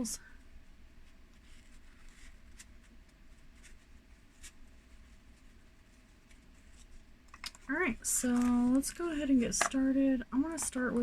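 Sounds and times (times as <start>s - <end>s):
quiet room hum: 0.0s - 11.0s
cards ticking and rustling: 6.3s - 9.8s.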